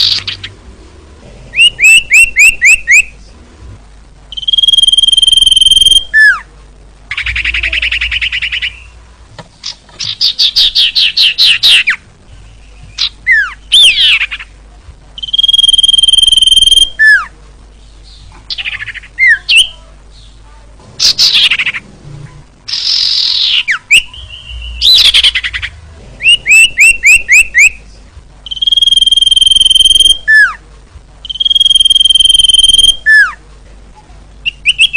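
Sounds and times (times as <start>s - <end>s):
bird chirps: 0.0s - 0.6s, 1.5s - 3.2s, 4.3s - 6.4s, 7.1s - 9.0s, 9.6s - 14.5s, 15.2s - 20.4s, 22.7s - 30.6s, 31.2s - 33.4s, 34.4s - 34.9s
fast buzzy bird trills: 4.3s - 6.4s, 15.2s - 17.2s, 28.5s - 30.6s, 31.3s - 33.4s.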